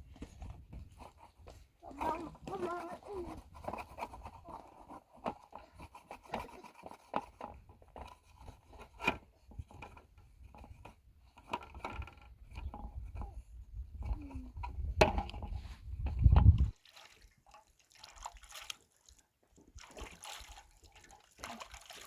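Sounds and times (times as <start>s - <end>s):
scraping and rubbing: 0.4s - 16.8s.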